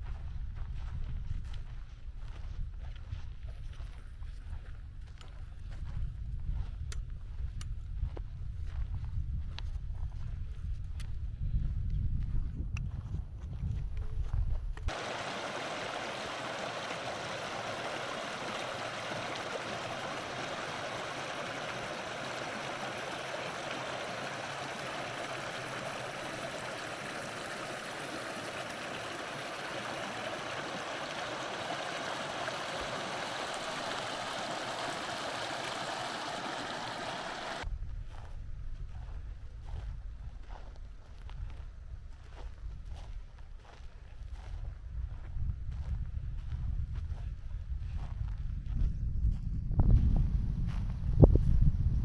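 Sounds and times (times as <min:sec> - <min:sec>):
stream water rushing: 0:14.9 - 0:37.6.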